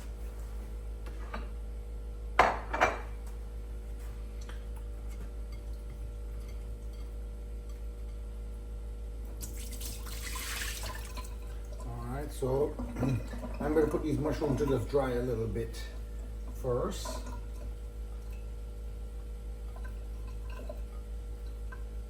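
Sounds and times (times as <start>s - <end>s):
steady low hum: 0.0s - 22.0s
dishware clattering: 2.4s - 3.1s
kitchen tap running: 9.4s - 22.0s.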